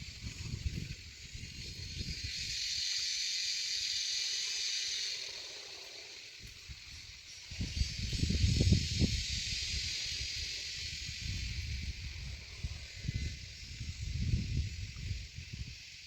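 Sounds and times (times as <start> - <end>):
wind gusts on microphone: 0.0 - 2.8, 6.4 - 16.0
steady high hiss: 0.0 - 16.0.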